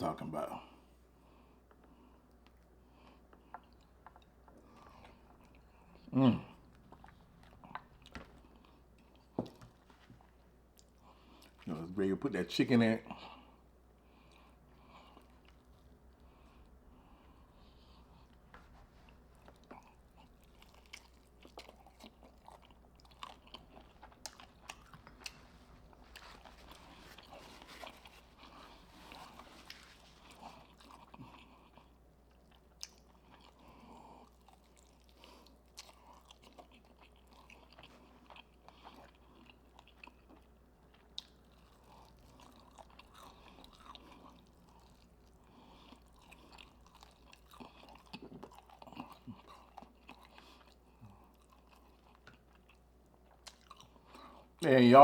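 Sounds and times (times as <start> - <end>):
person chewing food: 0.8 - 11.7, 13.1 - 54.6.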